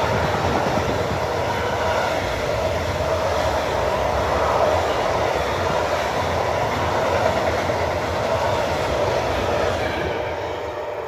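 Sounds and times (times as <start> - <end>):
steel wheels rushing on rails: 0.0 - 11.0.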